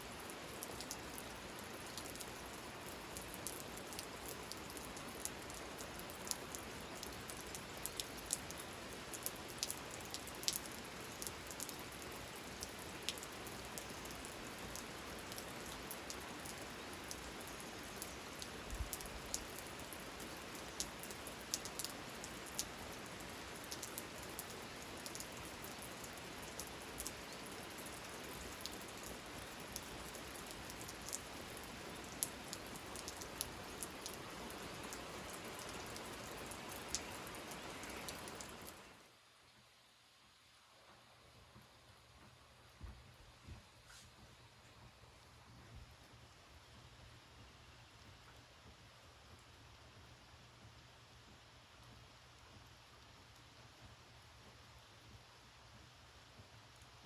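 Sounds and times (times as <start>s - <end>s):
raindrops tapping: 0.2s - 38.9s.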